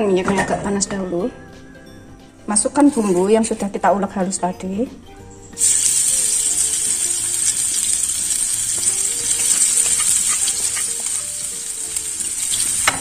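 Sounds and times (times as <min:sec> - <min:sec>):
paste sizzling in hot oil: 0:05.3 - 0:13.0.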